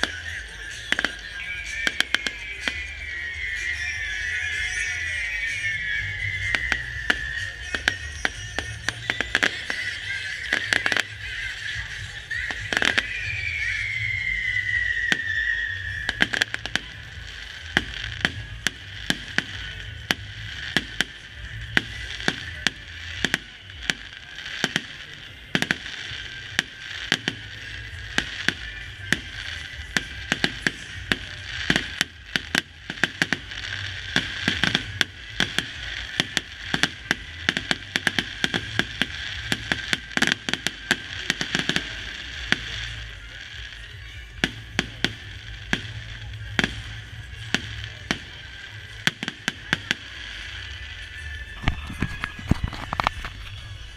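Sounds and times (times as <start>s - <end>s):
falling firework whistle: 0.0s - 53.9s
fireworks bangs and crackling: 0.0s - 53.9s.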